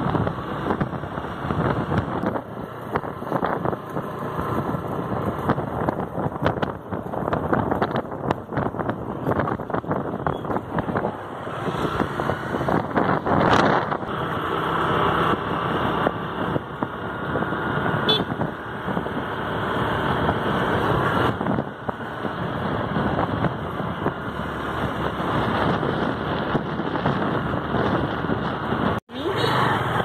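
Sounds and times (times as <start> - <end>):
vehicle engine and road noise: 0.0 - 30.0.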